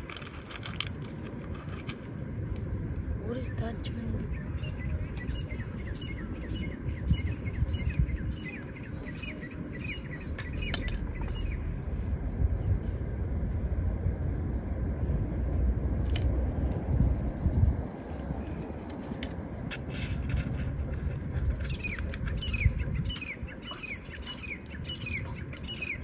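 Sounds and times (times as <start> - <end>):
steady low rumble: 0.0 - 26.0
bird chirping: 3.3 - 13.0, 17.3 - 26.0.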